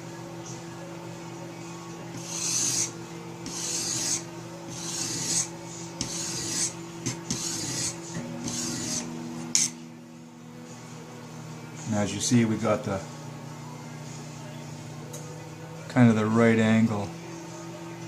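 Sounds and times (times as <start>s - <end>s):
sharpening stone rasping on knife: 2.2s - 9.8s.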